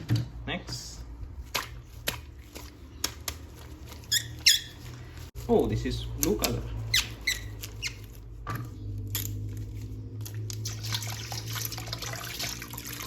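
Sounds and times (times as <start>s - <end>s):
tap water running and splashing: 10.2s - 13.0s.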